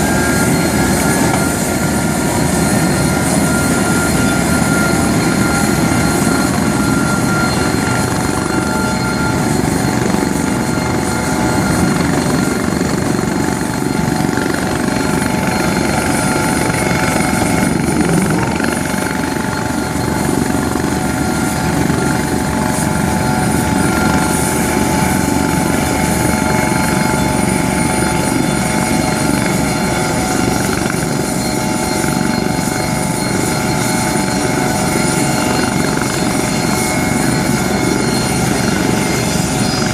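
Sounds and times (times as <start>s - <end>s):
aircraft engine rumbling: 0.0s - 26.3s.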